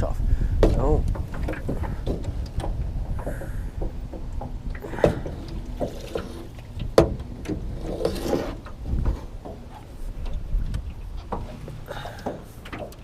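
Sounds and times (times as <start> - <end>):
wind rumble on microphone: 0.0 - 13.0
boat hull knocking on branches: 0.6 - 7.7.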